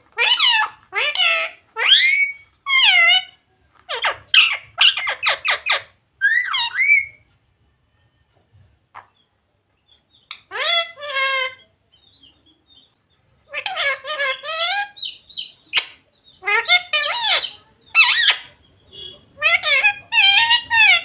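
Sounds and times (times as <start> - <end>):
parrot squawking: 0.0 - 7.2, 10.2 - 11.7, 13.4 - 21.0.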